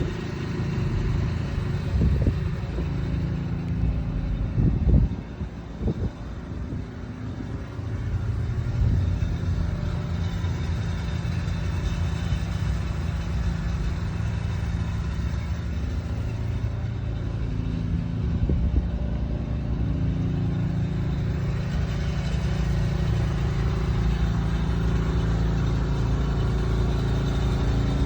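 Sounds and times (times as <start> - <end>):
low mechanical hum with drone: 0.0 - 28.0.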